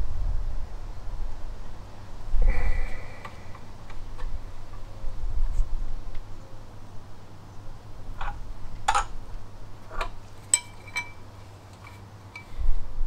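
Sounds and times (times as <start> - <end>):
metallic clicks and clinks of tools: 10.5 - 12.5.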